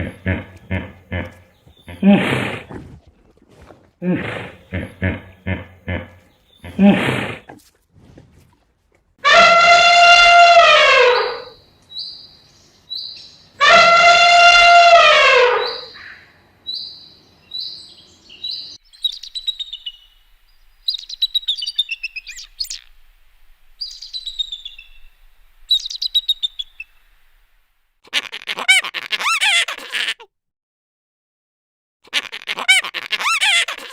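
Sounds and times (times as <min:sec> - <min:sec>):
loud animal calls: 0:00.0 - 0:02.9, 0:04.0 - 0:07.6, 0:09.2 - 0:11.6, 0:13.6 - 0:16.3
quick high bird chirps: 0:25.7 - 0:27.0.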